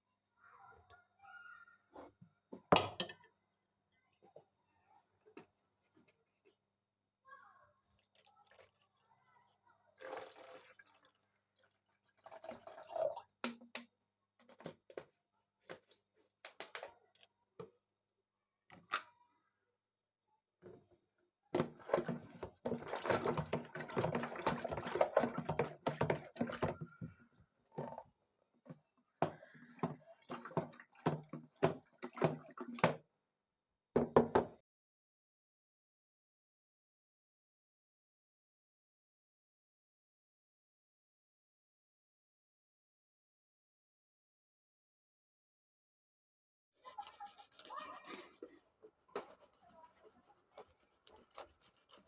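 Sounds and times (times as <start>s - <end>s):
household objects knocking and clattering: 2.6s - 3.2s, 21.6s - 27.2s, 29.2s - 33.0s, 34.0s - 34.6s
water running from tap: 10.0s - 13.4s.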